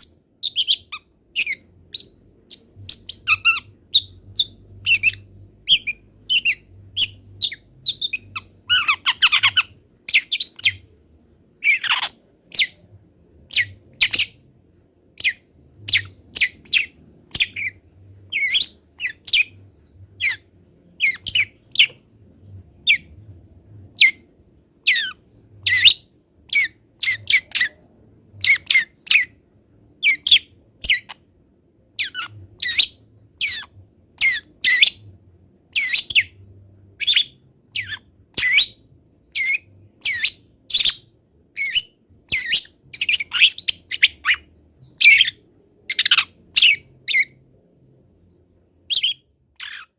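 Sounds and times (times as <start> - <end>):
bird singing chirps and whistles: 0.0 - 10.8, 13.5 - 14.4, 15.2 - 20.4, 24.9 - 29.4, 32.0 - 35.1, 35.7 - 47.4, 48.9 - 49.9.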